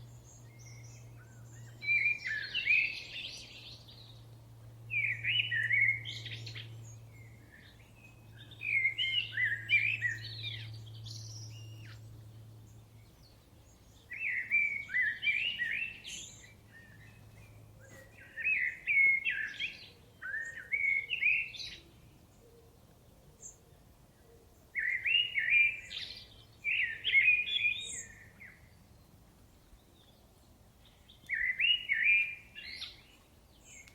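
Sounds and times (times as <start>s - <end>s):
faint low hum: 0.0s - 19.2s.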